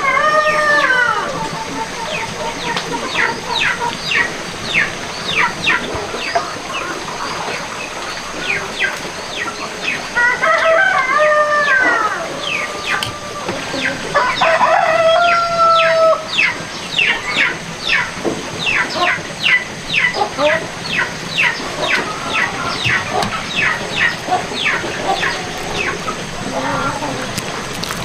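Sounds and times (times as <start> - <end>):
rooster crowing: 0.0 - 1.9, 10.2 - 16.3
chicks peeping: 0.0 - 28.0.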